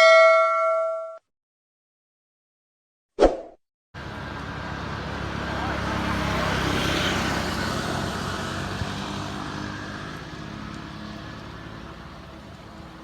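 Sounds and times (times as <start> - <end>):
motor vehicle passing: 4.0 - 13.0.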